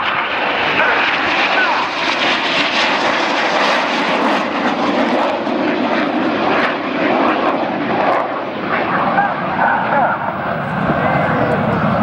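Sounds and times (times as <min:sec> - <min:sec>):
jet engines flying past: 0:00.0 - 0:12.0.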